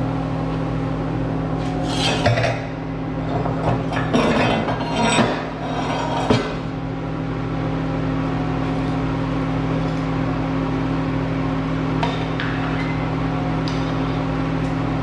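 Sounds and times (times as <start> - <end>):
shop equipment humming: 0.0 - 15.0
metal scraping and clatter: 1.6 - 6.8, 8.6 - 10.4.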